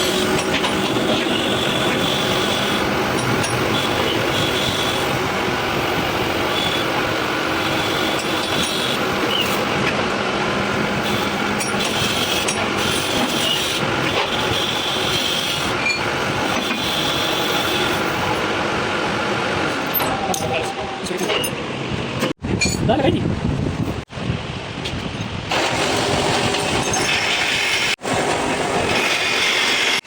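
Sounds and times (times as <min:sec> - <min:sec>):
workshop machine running: 0:00.0 - 0:22.6, 0:25.3 - 0:30.0.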